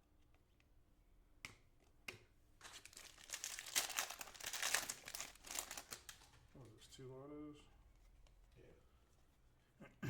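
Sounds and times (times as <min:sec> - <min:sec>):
wrapper crinkling and tearing: 0:02.6 - 0:06.4.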